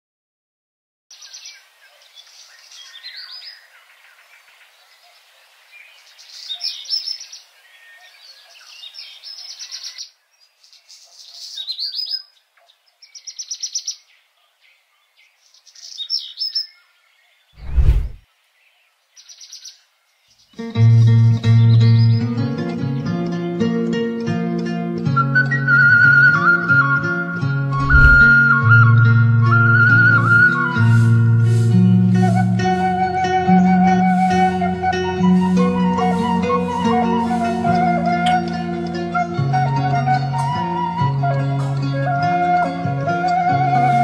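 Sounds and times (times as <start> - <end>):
birds singing and chirping: 1.1 - 17.9, 19.2 - 22.5.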